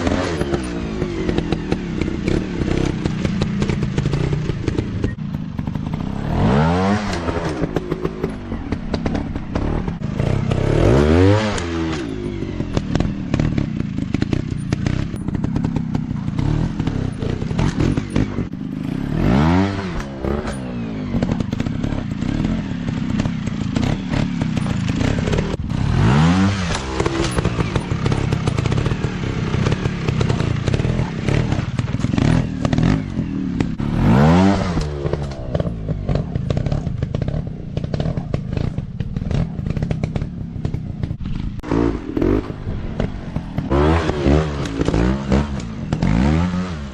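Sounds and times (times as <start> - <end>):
dirt bike engines revving: 0.0 - 46.9
clattering and thumps over ground: 6.9 - 18.6, 19.7 - 25.8, 26.6 - 33.8, 34.6 - 46.3.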